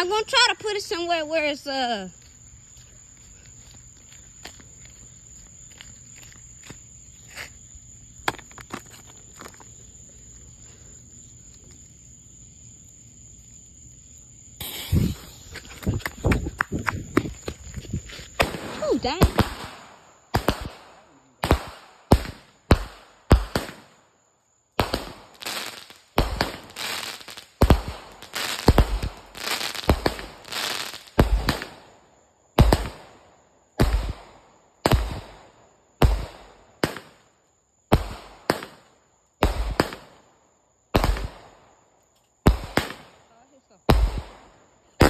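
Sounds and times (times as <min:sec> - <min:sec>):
firework bangs with crackling: 0:14.5 - 0:24.0, 0:24.8 - 0:32.0, 0:32.6 - 0:40.3, 0:40.9 - 0:41.6, 0:42.4 - 0:45.0.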